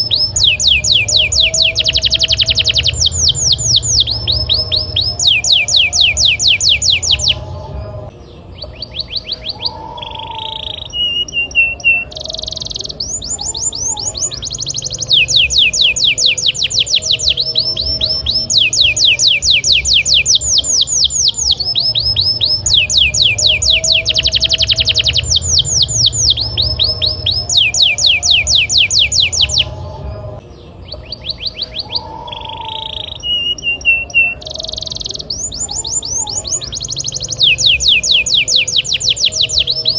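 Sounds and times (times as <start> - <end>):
faint low hum: 0.0 - 32.8
canary singing trills: 0.0 - 39.9.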